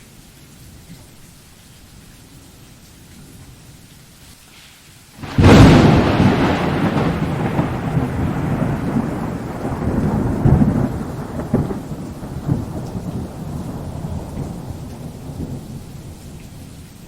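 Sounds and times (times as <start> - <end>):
steady rain: 0.0 - 17.0
close thunderclap: 5.2 - 17.0
low thunder rumble: 5.2 - 17.0.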